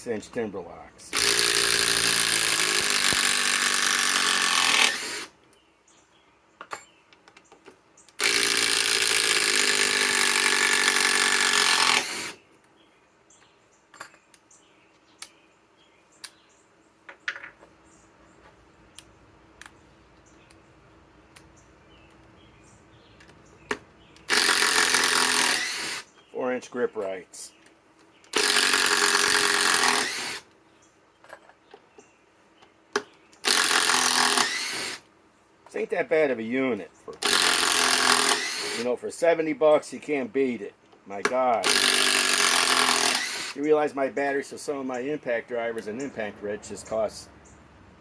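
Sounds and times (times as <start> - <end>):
impact driver hammering: 1.2 - 5.3, 28.4 - 30.4, 33.0 - 35.0, 41.2 - 43.6.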